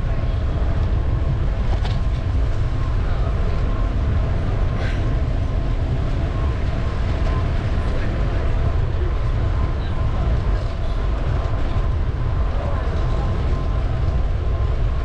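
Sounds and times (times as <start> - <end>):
street noise: 0.0 - 15.0
wind buffeting microphone: 0.0 - 15.0.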